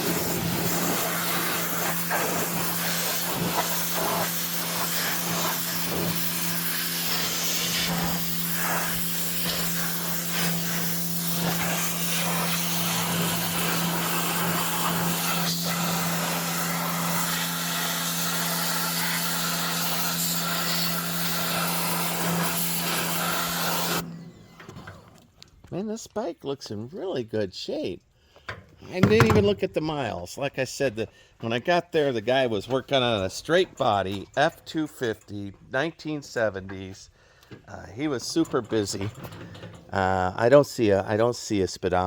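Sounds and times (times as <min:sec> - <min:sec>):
water jet hissing: 0:00.0 - 0:24.0
pressure washer pump hum: 0:00.0 - 0:25.2, 0:28.9 - 0:29.7.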